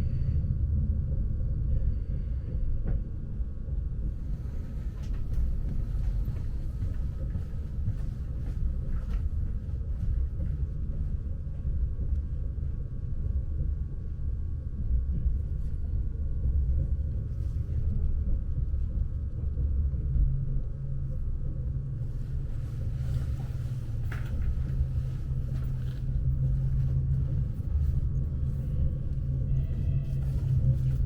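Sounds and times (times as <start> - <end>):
deep steady hum: 0.0 - 31.0
train carriage rumble: 0.0 - 31.0.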